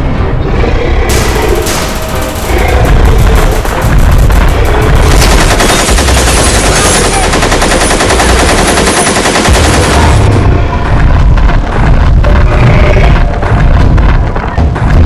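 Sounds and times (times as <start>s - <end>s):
rapid automatic gunfire: 1.1s - 10.5s.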